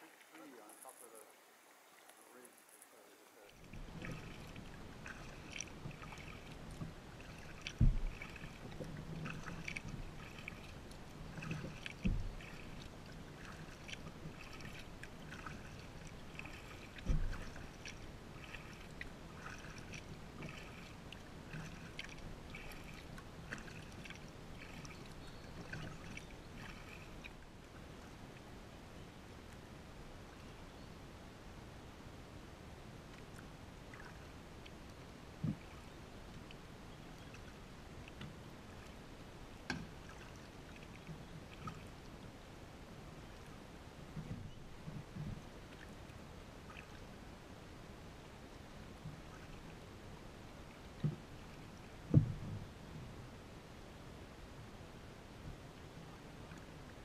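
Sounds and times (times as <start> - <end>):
paddle splashes: 0.0 - 30.5, 32.9 - 53.9
water moving along hull: 0.0 - 57.0
dull knocks: 7.8 - 8.1.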